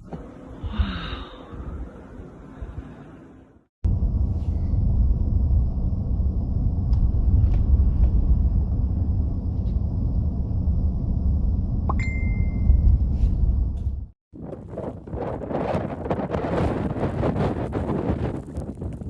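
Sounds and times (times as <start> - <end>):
wind buffeting microphone: 14.3 - 19.0.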